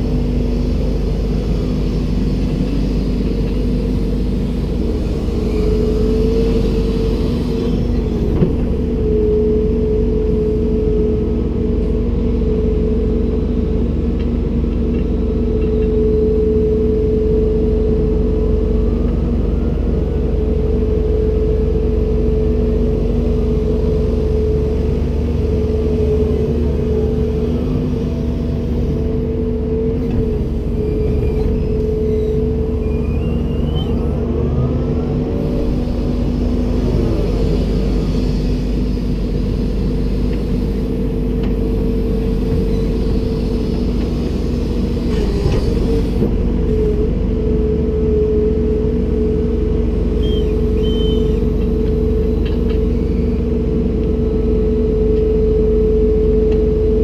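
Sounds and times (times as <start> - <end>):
hydraulic whine: 0.0 - 13.8, 15.5 - 57.0
excavator engine and hydraulics: 0.0 - 57.0
hiss: 37.0 - 41.0.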